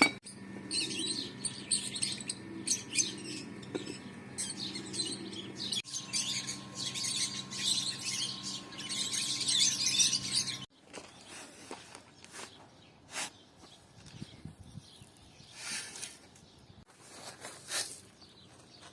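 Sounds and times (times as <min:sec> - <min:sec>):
small birds chirping: 0:00.6 - 0:16.9, 0:17.7 - 0:18.9.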